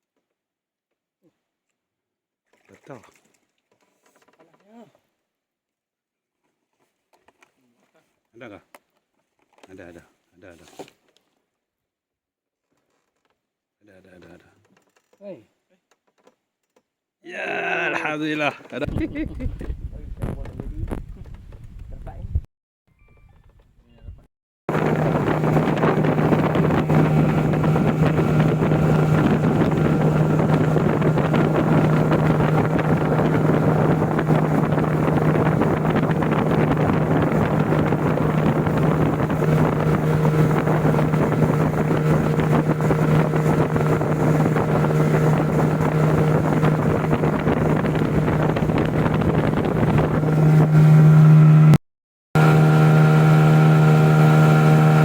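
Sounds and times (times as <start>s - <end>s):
wind on microphone: 18.9s - 22.5s, 23.2s - 51.7s
small boat motor running: 24.7s - 51.8s, 52.4s - 55.0s.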